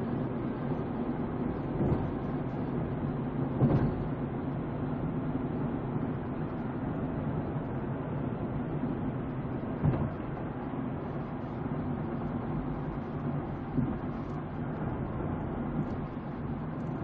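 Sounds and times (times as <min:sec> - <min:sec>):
vehicle engine and road noise: 0:00.0 - 0:17.0
vehicle bump: 0:03.6 - 0:04.1, 0:09.8 - 0:10.3.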